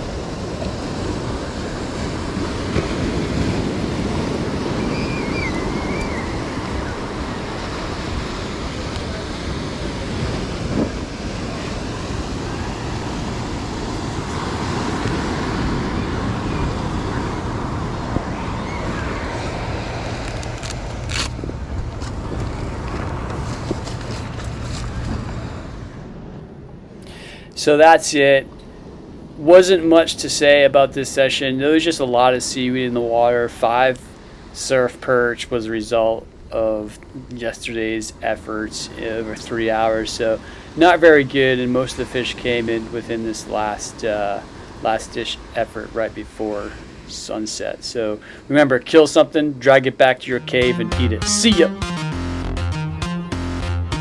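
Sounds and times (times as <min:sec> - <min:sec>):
wind buffeting microphone: 0:00.0 - 0:27.1
waves breaking on a beach: 0:00.0 - 0:51.7.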